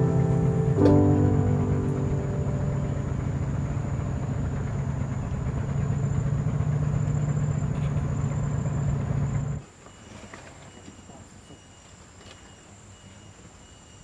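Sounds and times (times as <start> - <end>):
small engine running: 0.0 - 9.6.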